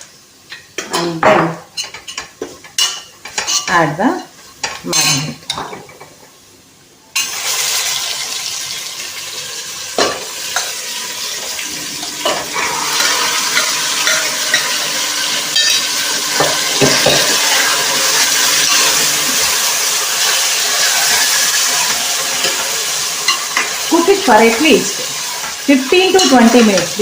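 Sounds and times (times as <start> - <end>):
chicken sizzling in hot oil: 7.1 - 27.0
spoon knocking against pan: 15.6 - 17.4.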